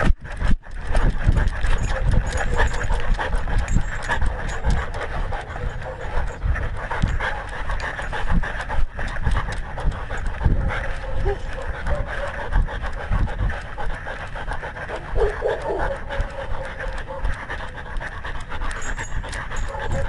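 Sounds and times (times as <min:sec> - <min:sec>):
dog panting: 0:00.2 - 0:20.0.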